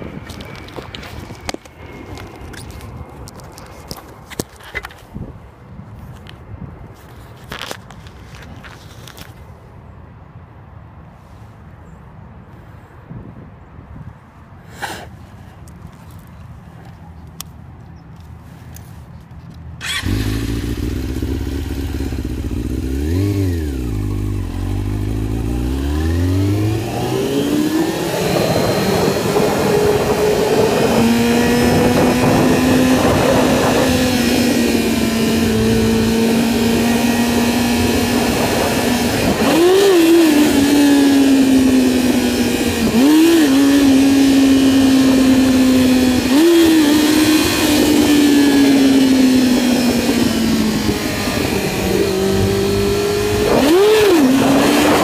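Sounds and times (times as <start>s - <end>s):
motorcycle engine revving: 19.8s - 55.0s.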